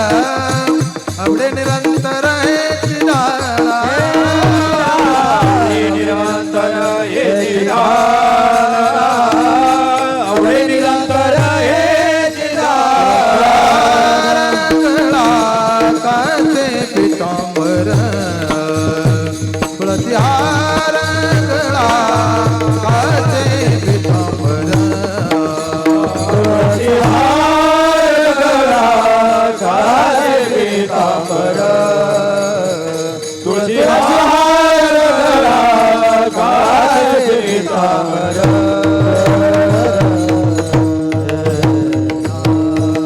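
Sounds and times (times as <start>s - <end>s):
hand drum beating: 0.0s - 6.9s, 13.9s - 28.1s, 38.3s - 43.0s
person singing wordless notes: 0.0s - 43.0s.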